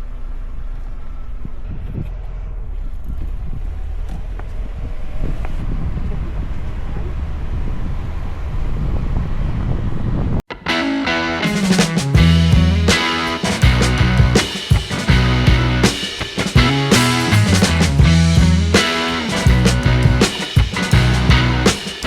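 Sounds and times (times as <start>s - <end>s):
car low rumble: 0.0s - 10.4s, 12.2s - 13.0s, 13.6s - 16.0s, 16.6s - 18.8s, 19.5s - 20.2s, 20.9s - 21.7s
wind noise on microphone: 1.4s - 10.4s.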